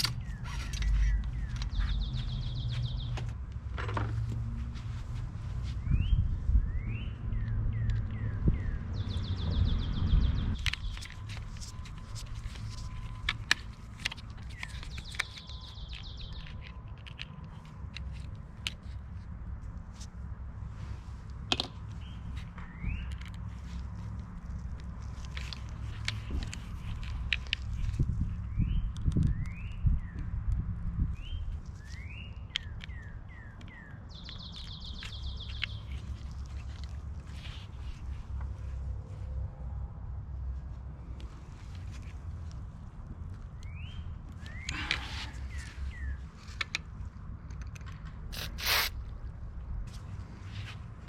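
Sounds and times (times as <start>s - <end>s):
bird singing rapid trill: 0.1s - 3.2s, 14.5s - 16.5s, 31.2s - 36.0s, 43.6s - 46.2s.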